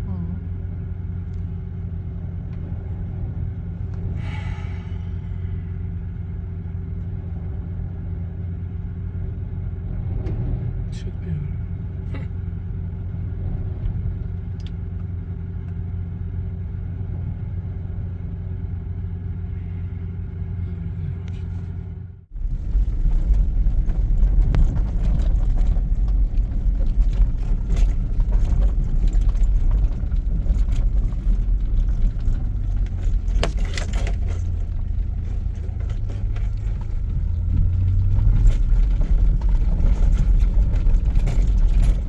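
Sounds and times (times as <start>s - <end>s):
knocks and rattles: 22.3s - 42.0s.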